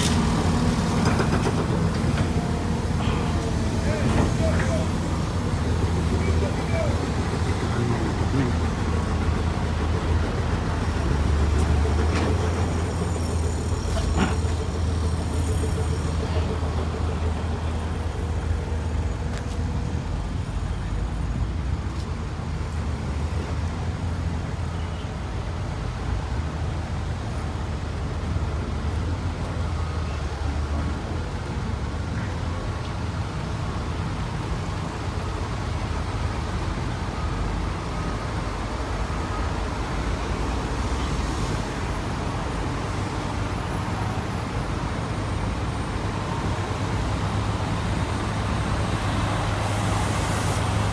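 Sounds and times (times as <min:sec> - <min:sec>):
heavy vehicle engines rumbling: 0:00.0 - 0:50.9
road noise: 0:00.0 - 0:50.9.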